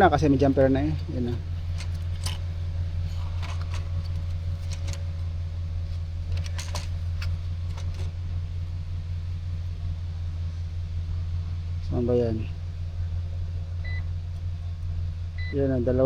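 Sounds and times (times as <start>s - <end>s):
steady low hum: 0.0s - 16.0s
metal parts and tools clicking: 0.4s - 8.2s.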